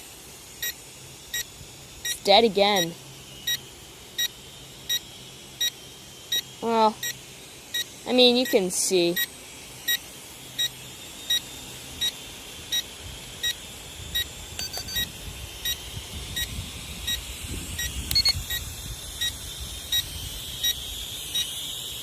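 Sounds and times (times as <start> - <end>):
wind rumble on microphone: 14.0 - 20.7
remote controller short high beeps: 14.2 - 15.1, 17.8 - 18.6.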